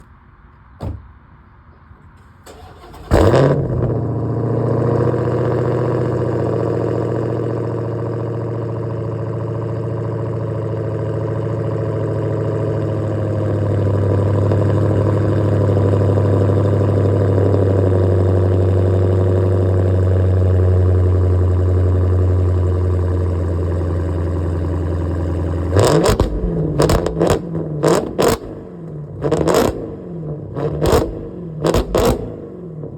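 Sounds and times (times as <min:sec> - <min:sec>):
car engine revs: 0:02.5 - 0:08.6, 0:21.1 - 0:32.9
car engine idling: 0:04.0 - 0:32.9.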